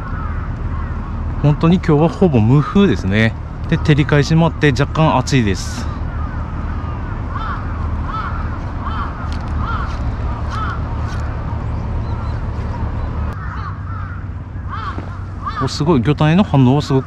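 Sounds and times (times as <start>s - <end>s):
bird calling: 0.0s - 17.0s
steady low hum: 0.0s - 17.0s.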